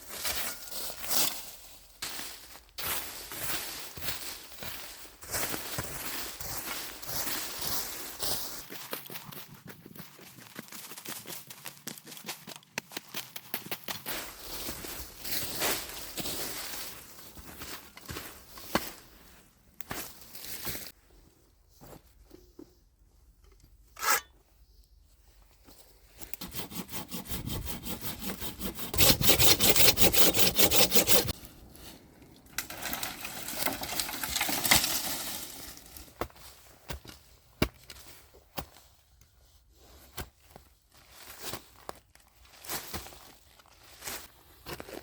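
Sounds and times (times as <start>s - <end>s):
hand saw cutting wood: 24.0s - 24.3s, 26.3s - 31.4s.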